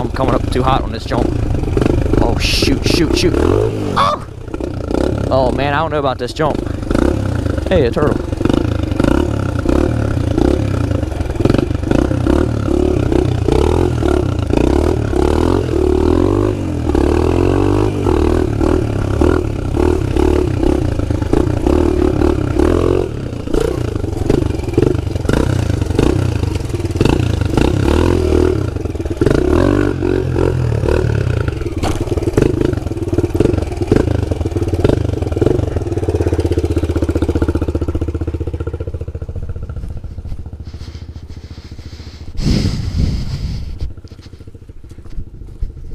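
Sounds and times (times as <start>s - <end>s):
pit bike engine revving: 0.0s - 44.7s.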